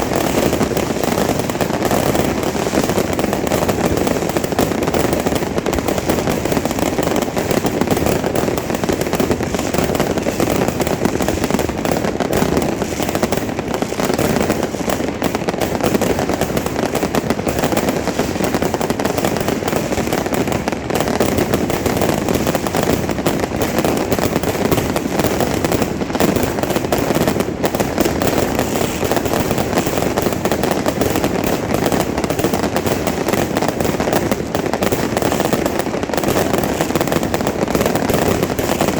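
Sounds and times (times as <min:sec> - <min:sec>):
firecrackers popping: 0:00.0 - 0:38.9.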